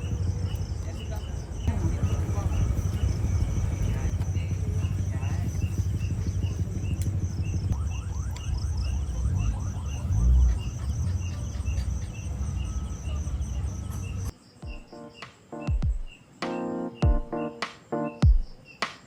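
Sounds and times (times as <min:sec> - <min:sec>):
low outdoor rumble: 0:00.0 - 0:14.3
crickets chirping: 0:00.0 - 0:19.0.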